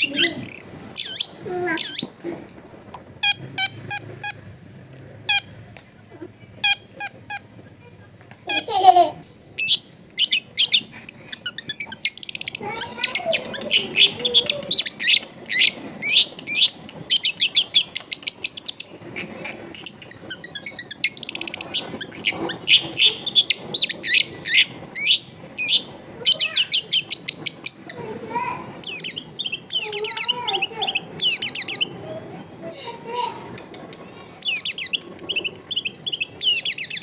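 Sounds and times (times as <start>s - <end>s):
bird singing chirps and trills: 0.0s - 2.2s, 9.6s - 33.4s, 34.4s - 37.0s.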